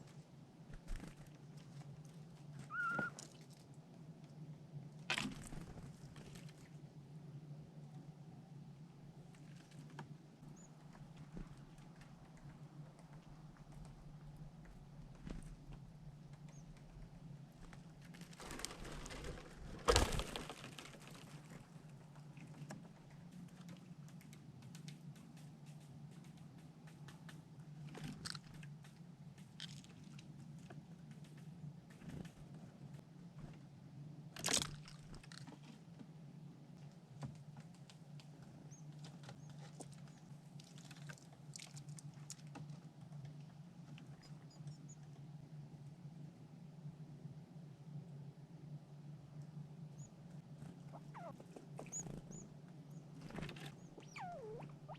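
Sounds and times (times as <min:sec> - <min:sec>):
low steady hum: 0:00.0 - 0:54.9
faint high chirps: 0:02.7 - 0:03.1, 0:53.8 - 0:54.9
small animals clicking and scratching: 0:09.2 - 0:33.0, 0:36.8 - 0:45.1, 0:50.4 - 0:54.9
squirrel clicking and tapping: 0:22.7 - 0:32.4.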